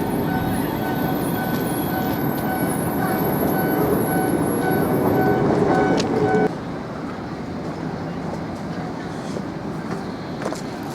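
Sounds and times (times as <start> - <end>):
tram rumbling: 0.0 - 10.9
electronic beeping: 0.2 - 6.5.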